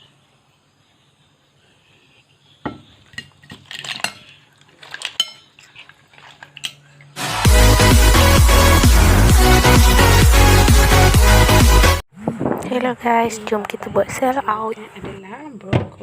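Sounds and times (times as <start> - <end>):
utensils clinking against dishes: 3.1 - 6.9
electronic dance music: 7.2 - 12.0.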